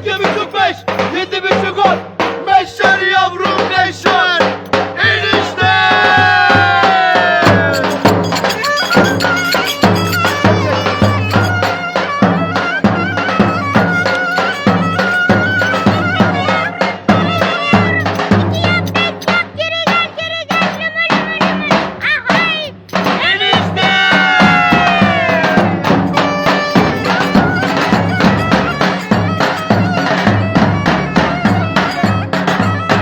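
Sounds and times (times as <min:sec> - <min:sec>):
drum beats: 0:00.0 - 0:33.0
reedy wind instrument melody: 0:05.3 - 0:19.6, 0:22.7 - 0:33.0.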